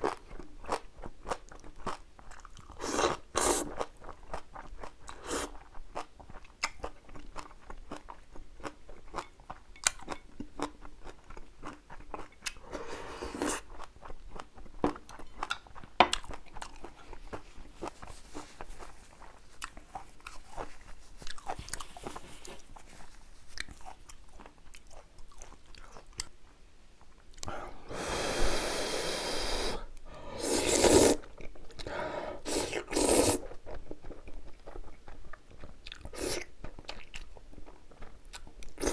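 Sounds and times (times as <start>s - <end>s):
person chewing noodles: 0.0s - 26.4s, 27.3s - 38.9s.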